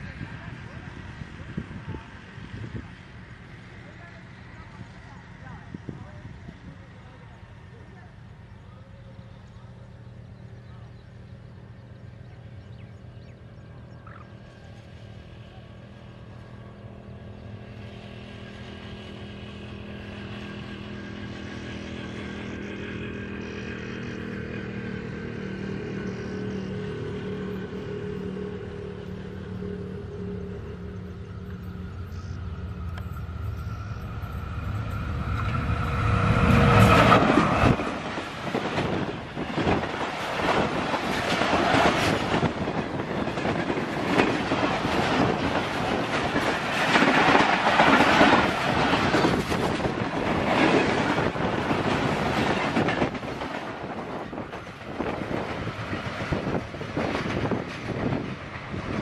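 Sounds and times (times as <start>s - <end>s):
diesel locomotive engine drone: 0.0s - 59.0s
train wheels clattering on rail joints: 27.3s - 59.0s.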